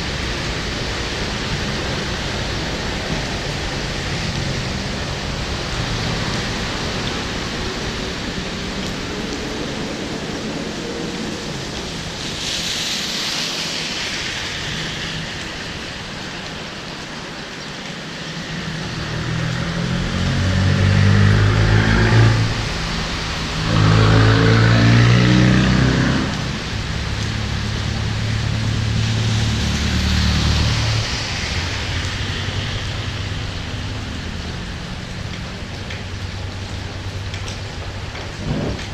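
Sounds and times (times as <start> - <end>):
rain hiss: 0.0 - 38.9
wet road noise: 0.0 - 38.9
engine hum: 18.4 - 38.9.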